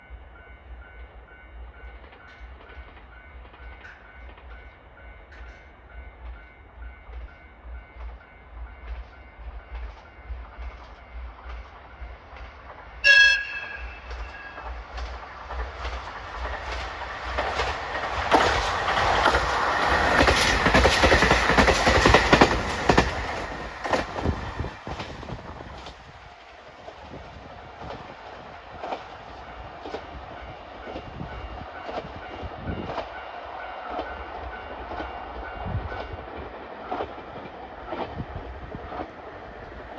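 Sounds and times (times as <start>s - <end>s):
diesel train approaching: 0.0s - 39.9s
train whistle blast: 13.0s - 14.8s
train wheels clattering over rail joints: 14.1s - 26.0s.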